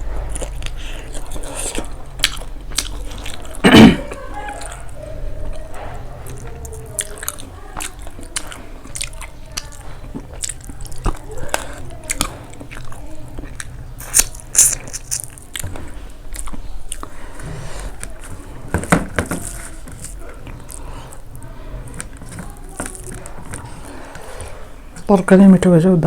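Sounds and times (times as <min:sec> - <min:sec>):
person chewing food: 0:00.0 - 0:25.1.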